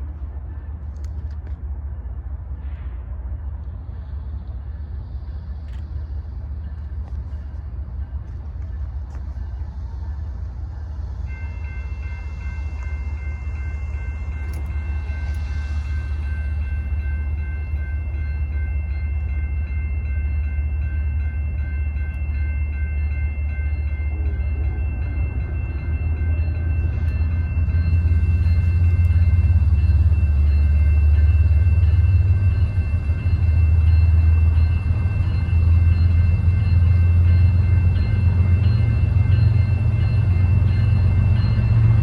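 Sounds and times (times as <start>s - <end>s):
diesel locomotives rumbling: 0.0s - 42.0s
steady high tones: 10.6s - 42.0s.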